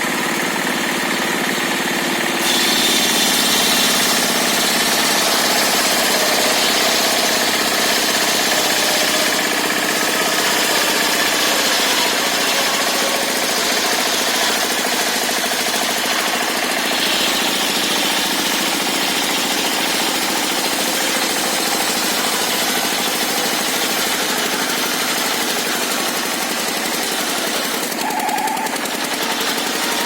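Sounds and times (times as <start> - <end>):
sawmill mechanical clatter: 0.0 - 30.0.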